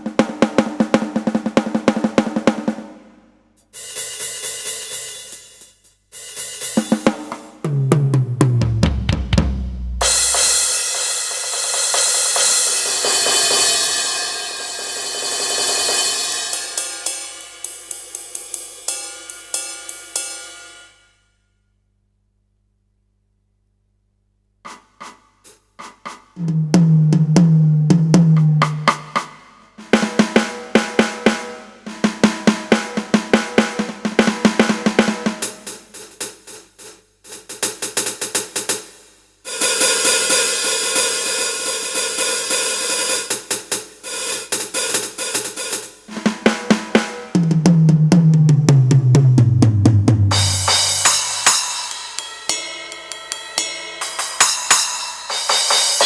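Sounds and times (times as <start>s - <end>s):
electronic drum hits: 7.7s - 10.7s, 46.1s - 51.6s
bright cymbal wash: 9.8s - 21.3s, 50.3s - 56.0s.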